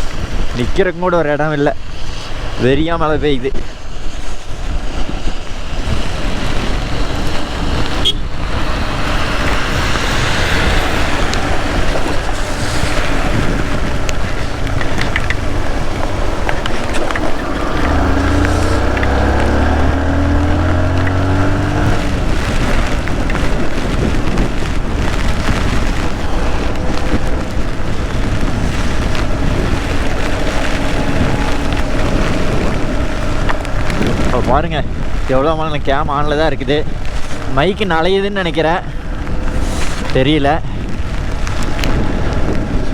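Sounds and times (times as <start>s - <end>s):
wind and rain on microphone: 0.0s - 42.9s
motorcycle engine: 6.0s - 35.3s.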